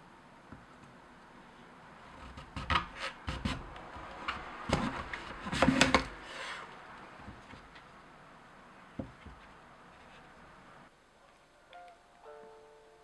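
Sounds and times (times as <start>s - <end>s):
objects rubbing and knocking: 2.1s - 7.9s.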